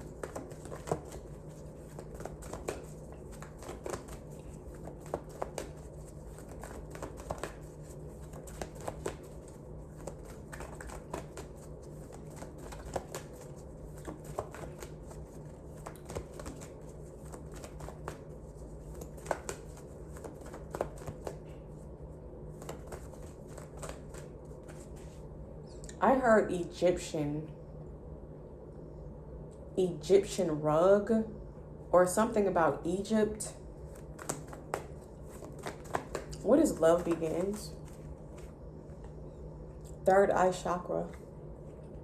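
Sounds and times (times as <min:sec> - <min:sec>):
cards being shuffled: 0:00.0 - 0:21.5, 0:22.5 - 0:25.2, 0:33.9 - 0:39.1
low steady hum: 0:00.0 - 0:42.0.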